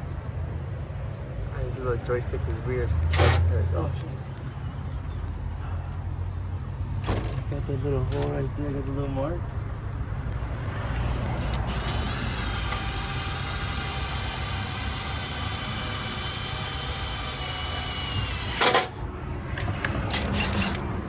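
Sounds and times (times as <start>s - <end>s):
steady low rumble: 1.6s - 21.0s
cordless drill whining: 3.1s - 3.4s, 10.8s - 21.0s.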